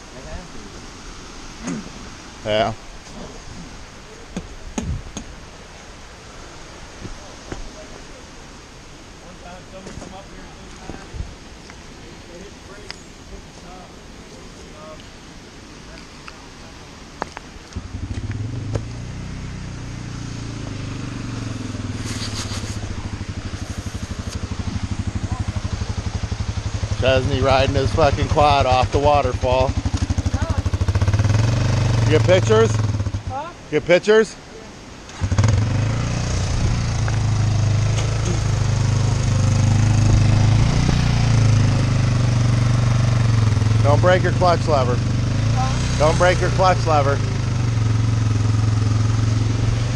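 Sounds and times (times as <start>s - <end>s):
off-road vehicle engine running: 17.7s - 33.5s, 35.1s - 49.9s.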